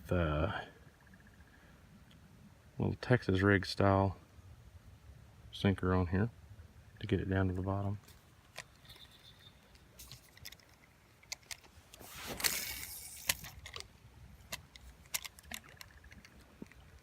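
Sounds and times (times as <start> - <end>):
fishing tackle clicking and rattling: 8.0 - 17.0.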